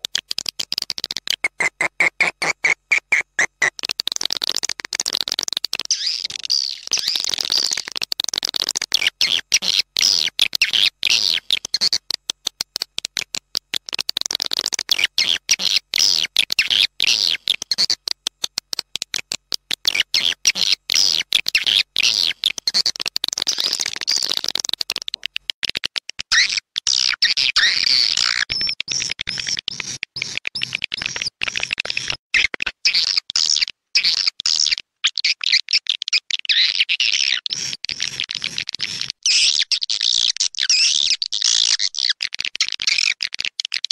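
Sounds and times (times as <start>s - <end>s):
recorded swiftlet chirps: 0.0s - 25.6s, 27.3s - 32.5s.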